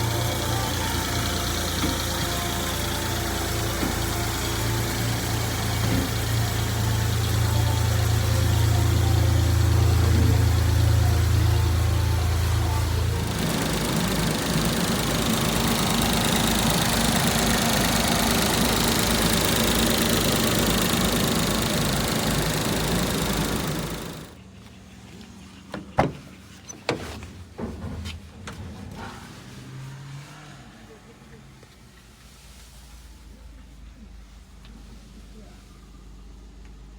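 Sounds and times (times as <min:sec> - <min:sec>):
small truck engine running: 0:00.0 - 0:24.4.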